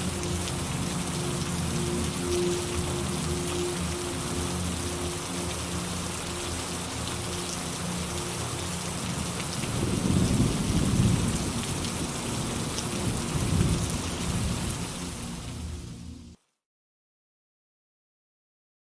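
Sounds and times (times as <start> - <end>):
steady rain: 0.0 - 16.5
low rolling thunder: 9.7 - 14.8.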